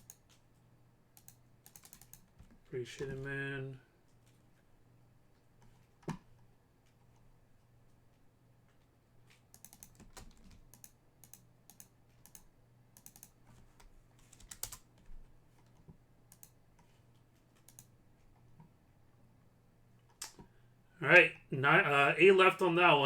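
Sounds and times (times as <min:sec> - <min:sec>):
typing on computer keyboard: 0:00.0 - 0:00.4, 0:01.2 - 0:02.5, 0:09.5 - 0:16.9, 0:17.6 - 0:17.9.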